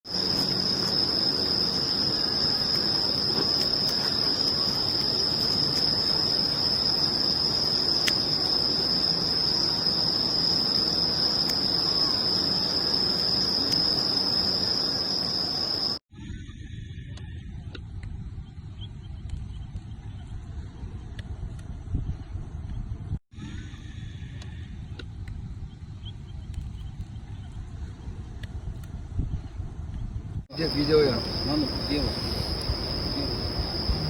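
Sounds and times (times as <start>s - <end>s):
insect trilling: 0.1s - 16.0s, 30.5s - 34.0s
steady outdoor hiss: 0.1s - 16.0s, 30.5s - 34.0s.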